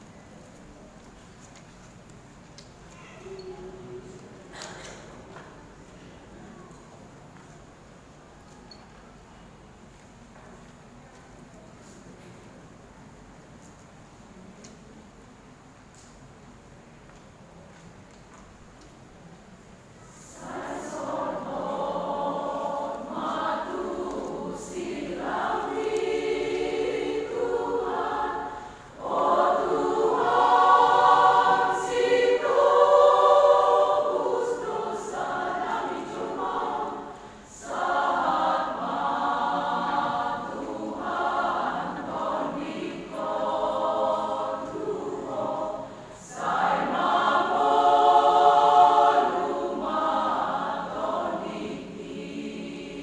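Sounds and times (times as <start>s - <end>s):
choir singing unaccompanied: 20.1s - 53.0s.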